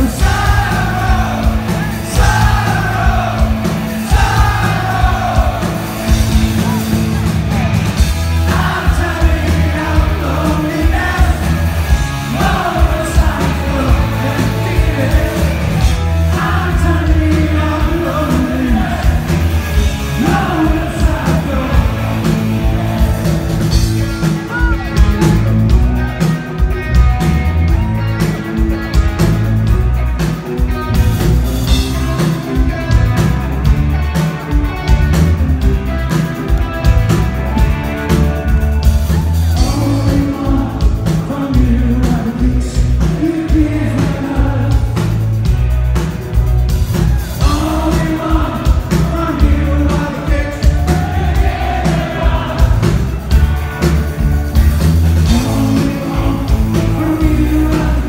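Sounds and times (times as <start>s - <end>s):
electric guitar: 0.0s - 58.0s
live rock band: 0.0s - 58.0s
man singing: 8.4s - 23.3s, 39.5s - 45.3s, 47.4s - 52.9s, 55.2s - 58.0s.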